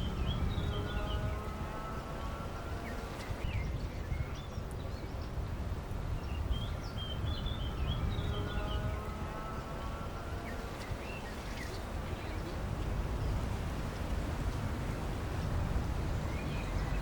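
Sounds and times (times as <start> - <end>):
small birds chirping: 0.0 - 14.7, 15.4 - 17.0
low outdoor rumble: 0.0 - 17.0.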